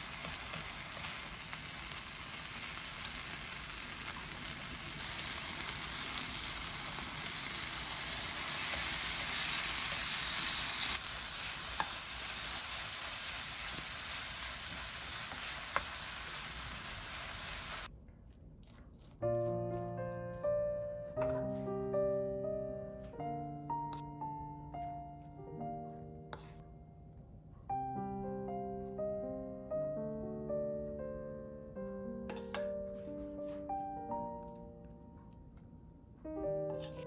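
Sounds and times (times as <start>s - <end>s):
onions and egg sizzling in a pan: 0.0s - 17.9s.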